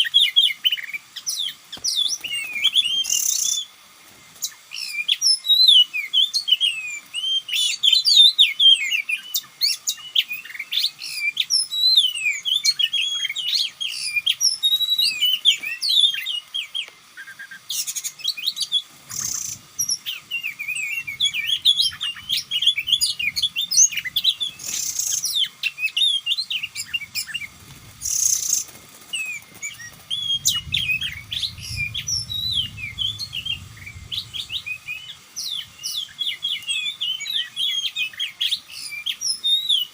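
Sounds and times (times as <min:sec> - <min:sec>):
bird whistles and chirps: 0:00.0 - 0:03.7, 0:04.4 - 0:39.9
short hissy bursts: 0:15.8 - 0:20.8
low rumble: 0:30.1 - 0:35.1.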